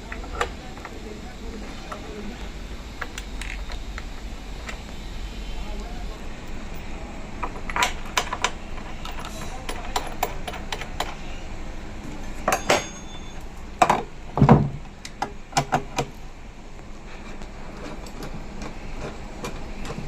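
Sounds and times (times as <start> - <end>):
hand tools clicking and knocking: 7.4 - 11.2, 12.5 - 13.2, 17.8 - 20.0.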